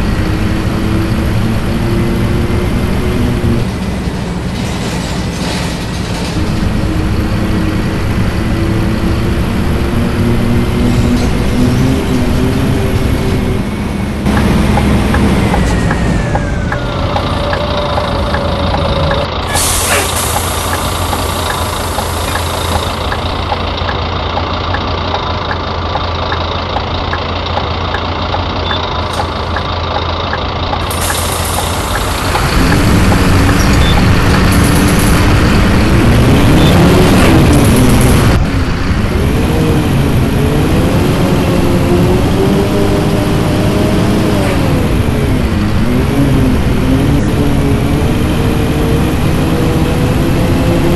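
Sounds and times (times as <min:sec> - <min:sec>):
bus engine idling and revving: 0:00.0 - 0:50.9
air brake hiss: 0:19.5 - 0:22.3.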